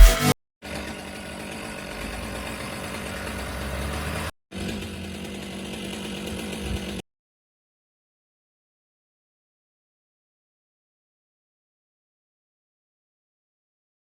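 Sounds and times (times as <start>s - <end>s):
chainsaw engine running: 0.0s - 7.0s.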